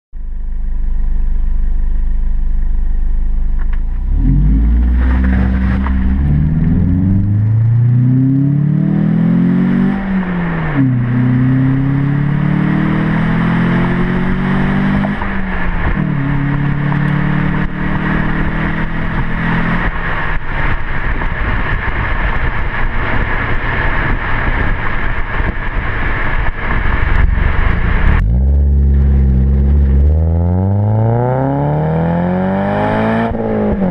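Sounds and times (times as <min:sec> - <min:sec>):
car engine idling and accelerating: 0:00.2 - 0:33.9
rushing noise: 0:04.0 - 0:17.0, 0:19.0 - 0:32.8.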